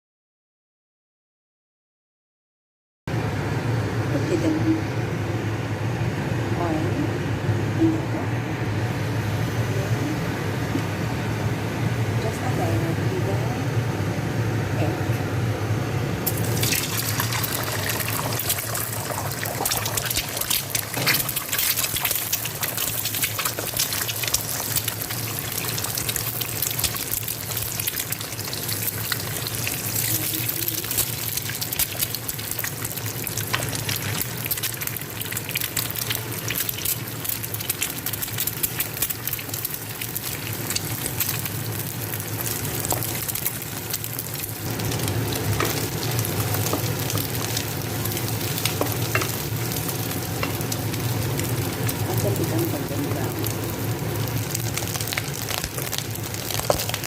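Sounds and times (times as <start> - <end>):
egg sizzling in oil: 16.2 - 57.0.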